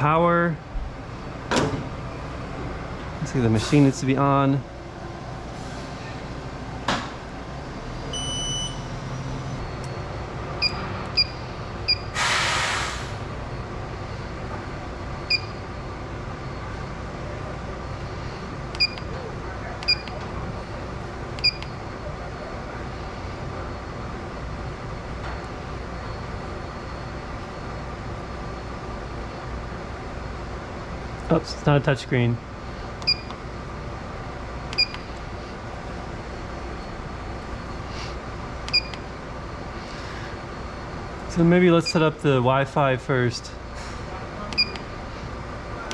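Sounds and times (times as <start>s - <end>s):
long electronic beep: 8.0s - 9.0s
burst of hiss: 12.1s - 13.3s
short key-press beeps: 15.3s - 15.6s, 18.7s - 19.1s, 19.8s - 20.2s, 21.4s - 21.8s, 33.0s - 33.4s, 34.7s - 35.1s, 38.7s - 39.0s, 44.5s - 44.9s.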